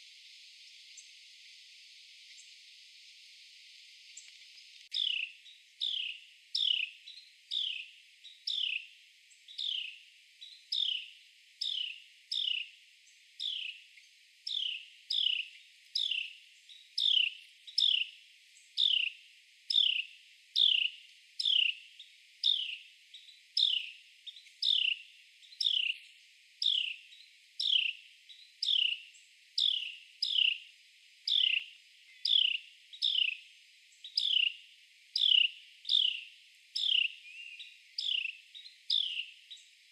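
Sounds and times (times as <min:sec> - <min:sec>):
wren calling sharp notes: 0:24.6 - 0:25.0, 0:25.6 - 0:26.0, 0:29.6 - 0:30.6, 0:31.3 - 0:33.4, 0:34.1 - 0:34.6, 0:35.2 - 0:36.2, 0:36.8 - 0:39.3.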